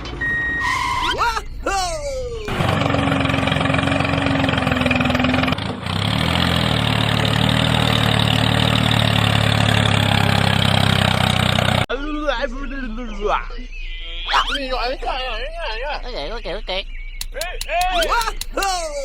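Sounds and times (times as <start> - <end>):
tractor engine idling: 2.2 - 11.8.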